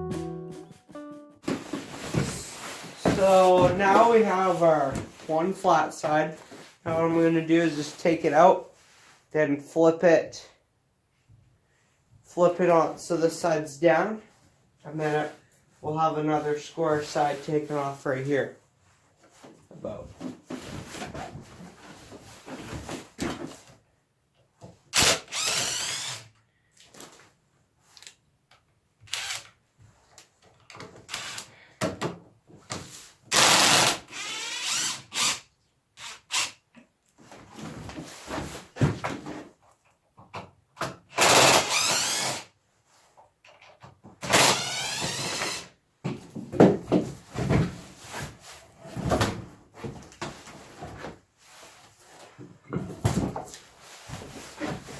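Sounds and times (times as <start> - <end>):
power drill driving screws: 24.9 - 26.3, 29.1 - 29.5, 31.1 - 31.5, 33.3 - 35.4, 36.0 - 36.6, 41.1 - 42.5, 44.2 - 45.7.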